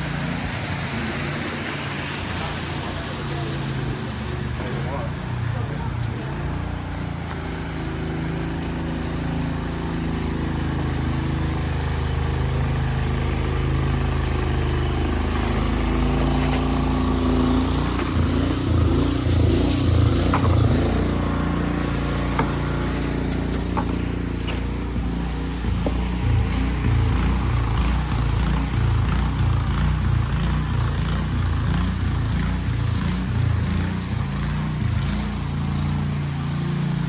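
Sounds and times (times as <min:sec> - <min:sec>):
vehicle engine running: 0:00.0 - 0:37.0.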